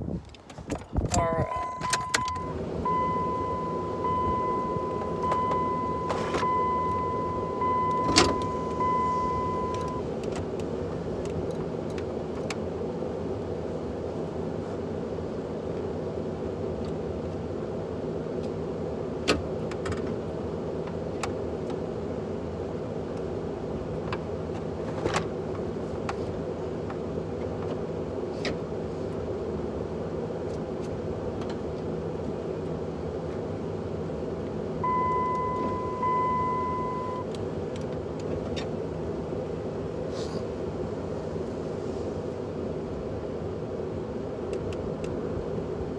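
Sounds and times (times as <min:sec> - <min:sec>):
high electronic tone: 0:01.6 - 0:10.0, 0:34.8 - 0:37.2
truck engine idling: 0:02.0 - 0:10.0.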